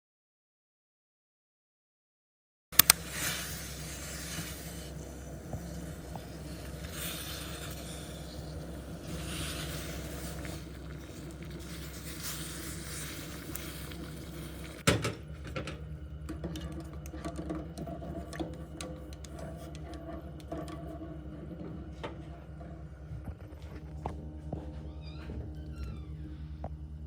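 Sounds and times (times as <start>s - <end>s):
steady low hum: 2.8s - 27.0s
hiss: 2.9s - 14.8s.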